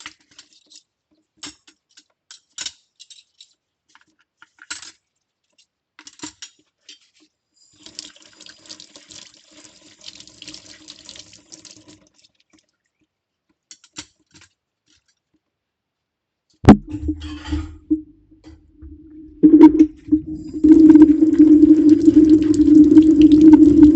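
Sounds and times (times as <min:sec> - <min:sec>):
tap water running: 0:07.8 - 0:12.1, 0:16.7 - 0:23.9
sharp knock: 0:16.7 - 0:18.6.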